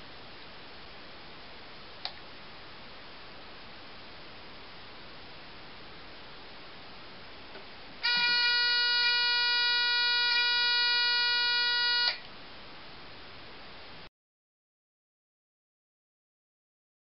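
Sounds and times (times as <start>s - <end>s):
alarm buzzer steady high tone: 8.0s - 12.2s.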